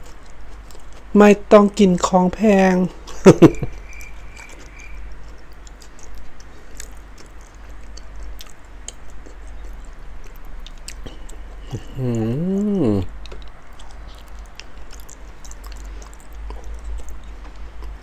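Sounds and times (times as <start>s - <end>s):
mouth chewing food: 0.0s - 18.0s
hummed vocal sound: 11.1s - 13.1s.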